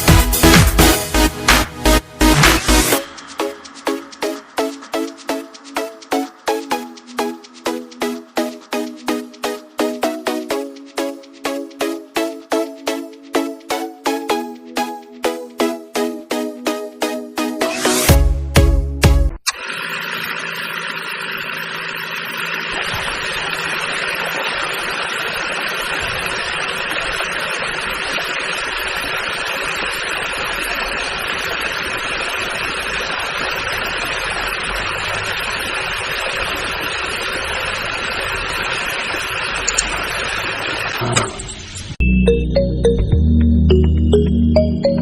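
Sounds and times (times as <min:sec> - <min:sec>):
small electric motor whirring: 0:19.5 - 0:41.9.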